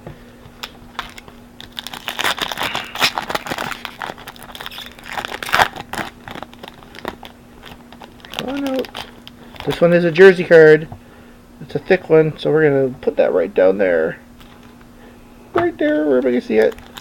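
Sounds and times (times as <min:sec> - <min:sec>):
faint steady hum: 0:00.0 - 0:17.0
wrapper crinkling and tearing: 0:00.6 - 0:10.2, 0:16.2 - 0:17.0.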